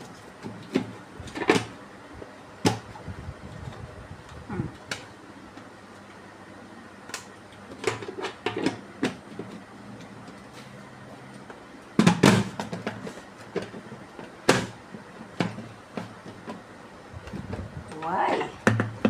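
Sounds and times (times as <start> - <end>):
kitchen items knocking and clattering: 0.0 - 1.8, 7.7 - 10.4, 11.9 - 16.6, 17.3 - 19.0.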